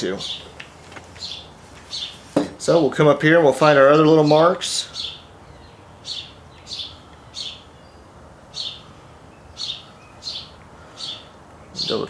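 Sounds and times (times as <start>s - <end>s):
small bird chirping: 1.2s - 2.3s, 4.2s - 12.0s.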